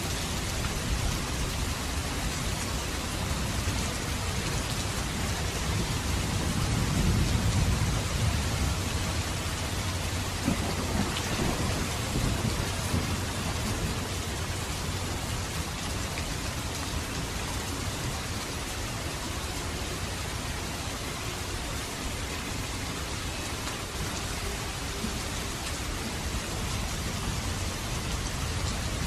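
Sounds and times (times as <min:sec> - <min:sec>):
steady rainfall: 0:00.0 - 0:29.0
low rumble of thunder: 0:00.1 - 0:18.7.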